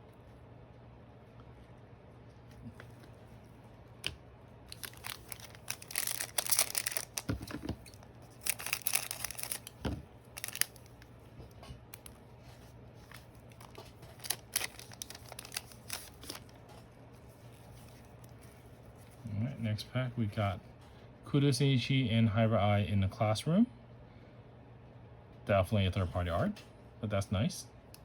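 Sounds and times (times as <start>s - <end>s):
wrapper tearing and crinkling: 4.7s - 11.1s, 13.0s - 16.6s.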